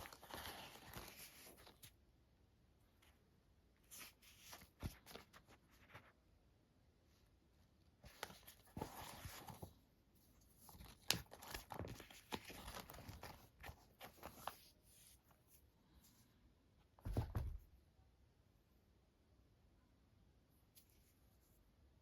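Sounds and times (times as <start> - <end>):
thump: 17.0 - 17.7.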